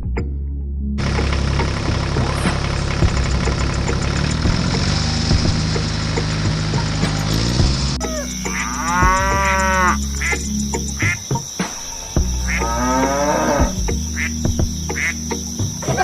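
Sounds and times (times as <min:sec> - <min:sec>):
cattle mooing: 0:08.0 - 0:10.0, 0:12.4 - 0:13.8.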